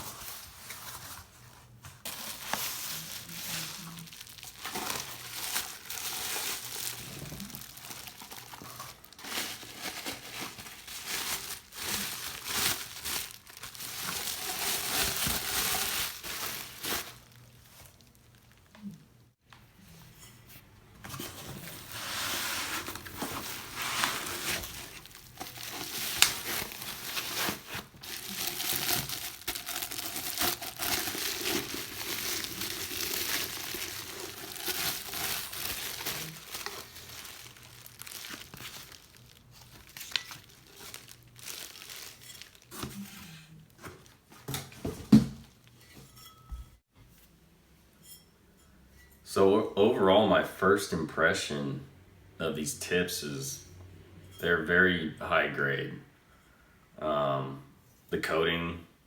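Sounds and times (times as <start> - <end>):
packing material crinkling and tearing: 0.0 - 19.3, 21.6 - 45.8.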